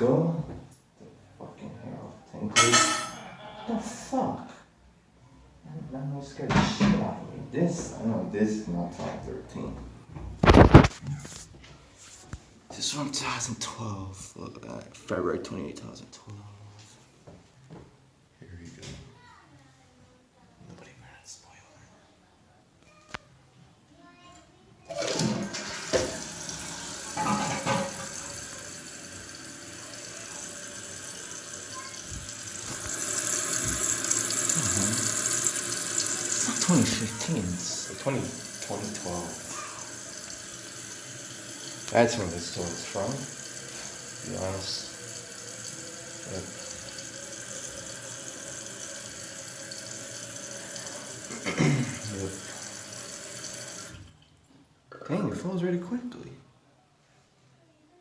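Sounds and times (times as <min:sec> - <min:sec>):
toilet flushing: 0:24.9 - 0:54.2
toilet tank refilling: 0:24.9 - 0:54.4.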